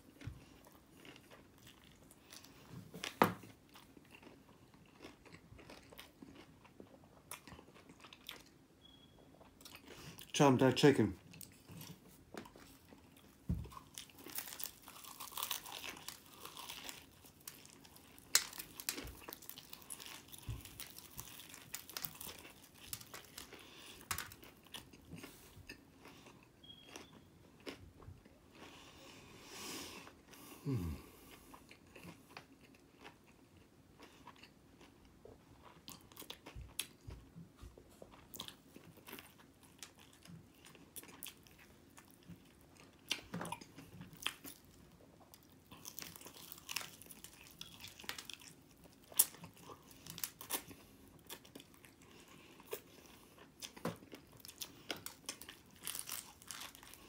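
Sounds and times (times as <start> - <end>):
crunchy chewing: 0.0 - 8.5, 11.3 - 27.8, 38.1 - 57.0.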